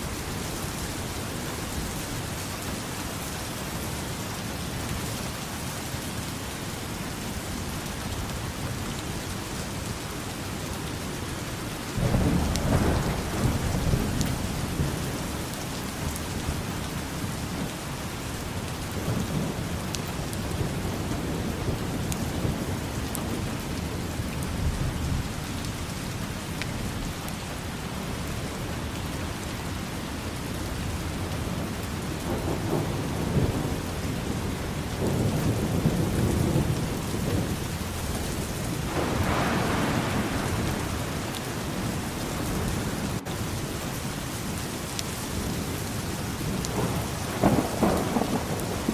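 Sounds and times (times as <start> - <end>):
steady rain: 0.0 - 48.9
thunder rumbling: 12.0 - 27.3, 30.8 - 44.6, 45.4 - 48.9.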